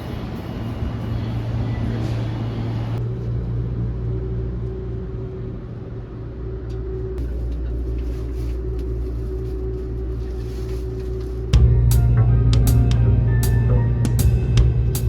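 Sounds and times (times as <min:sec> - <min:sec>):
low rumble of moving vehicle: 0:00.0 - 0:15.0
constant hum: 0:02.5 - 0:15.0
music with drums: 0:11.5 - 0:15.0.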